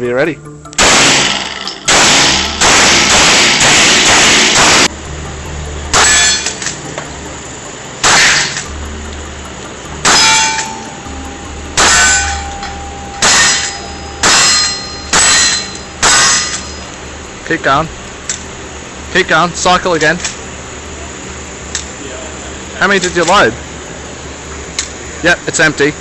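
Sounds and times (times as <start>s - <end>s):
metallic ringing: 0.0s - 25.6s
pistol shots echoing indoors: 0.8s - 4.9s.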